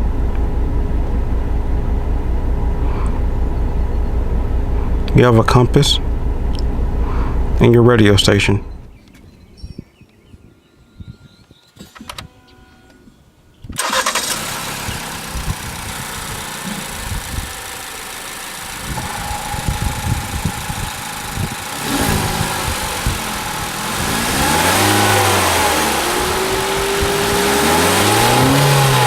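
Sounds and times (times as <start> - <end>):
car engine starting and idling: 0.0 - 9.0, 13.7 - 29.0
car engine revving: 13.8 - 29.0.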